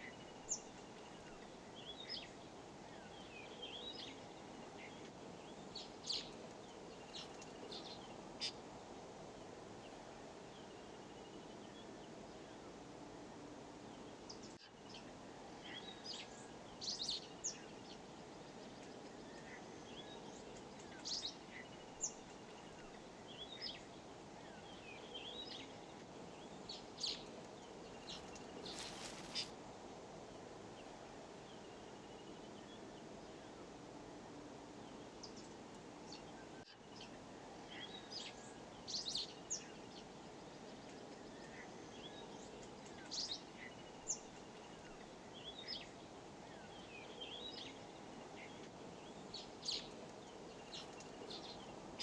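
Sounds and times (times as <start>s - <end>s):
low background noise: 0.0s - 52.0s
birds chirping: 14.3s - 29.5s.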